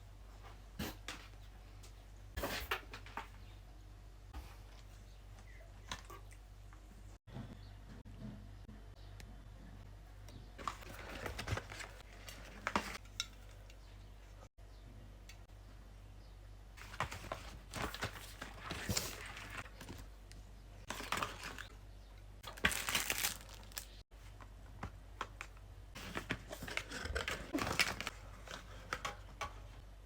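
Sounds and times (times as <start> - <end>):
packaging crinkling and tearing: 22.4 - 24.0.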